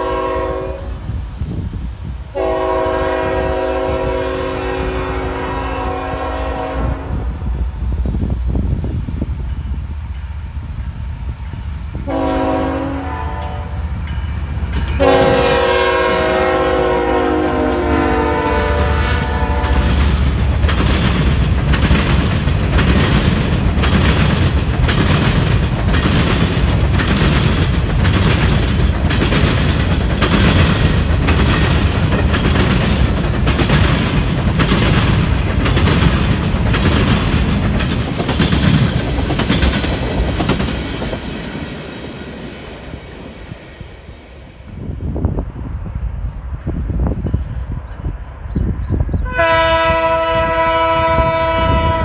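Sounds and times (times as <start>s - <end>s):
freight train rumbling past: 0.0s - 52.0s
wheel clacks over rail joints: 19.7s - 41.6s.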